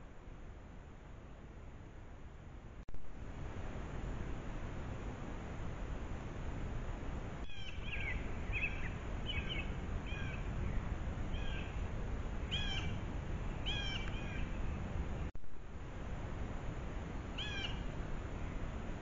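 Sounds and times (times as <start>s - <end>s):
microphone hiss: 0.0s - 19.0s
bird calling: 7.4s - 11.8s, 12.5s - 13.0s, 13.6s - 14.8s, 17.4s - 17.9s.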